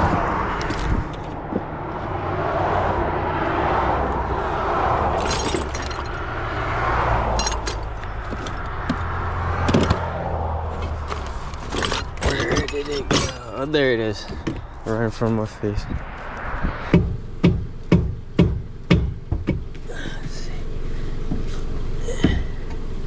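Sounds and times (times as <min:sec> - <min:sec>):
low engine hum: 0:00.0 - 0:23.0
vehicles passing: 0:00.0 - 0:23.0
sharp clicks and knocks: 0:16.6 - 0:19.8.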